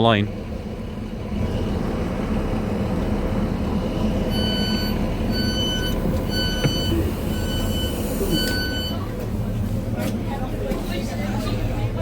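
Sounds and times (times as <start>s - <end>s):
diesel train idling rumble: 0.0s - 12.0s
door-closing warning beeps: 4.3s - 9.1s.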